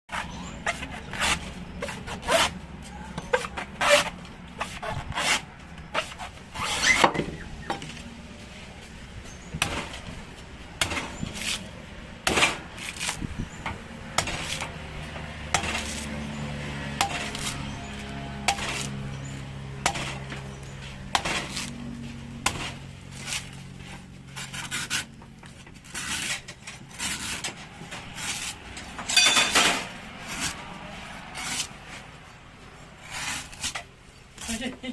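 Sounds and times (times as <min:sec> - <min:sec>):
utensils knocking and scraping: 0:12.2 - 0:22.9, 0:25.4 - 0:30.6.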